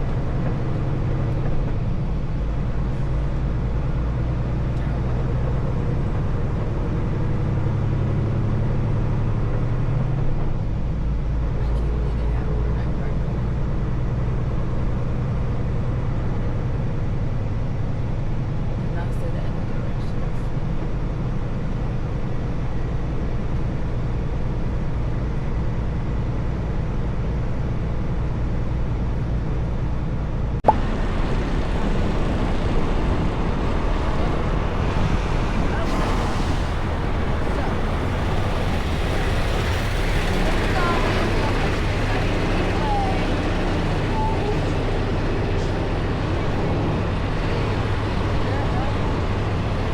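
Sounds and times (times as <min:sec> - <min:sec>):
diesel truck engine running: 0:00.0 - 0:49.9
hissy noise: 0:35.6 - 0:49.9.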